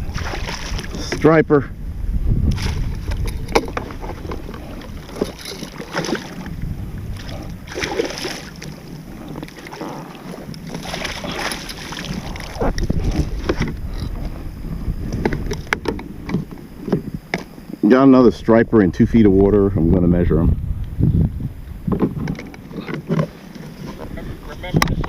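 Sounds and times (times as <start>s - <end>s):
water splashing and sloshing: 0.0s - 1.4s, 2.4s - 17.8s
wind buffeting microphone: 0.0s - 25.0s.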